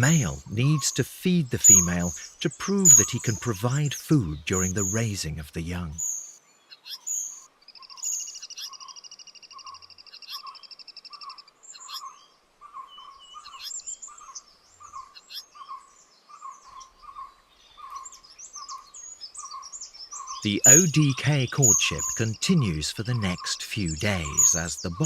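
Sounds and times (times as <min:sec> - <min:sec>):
bird repeated notes: 0:00.0 - 0:06.4, 0:20.3 - 0:25.0
high bird chirps: 0:01.5 - 0:03.5, 0:04.4 - 0:12.2, 0:12.8 - 0:25.0
fast-pulsing bird trill: 0:01.6 - 0:03.5, 0:20.4 - 0:25.0.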